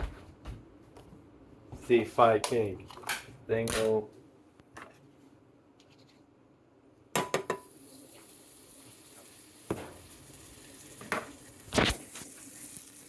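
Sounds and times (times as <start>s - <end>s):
food sizzling in pan: 7.6s - 13.0s.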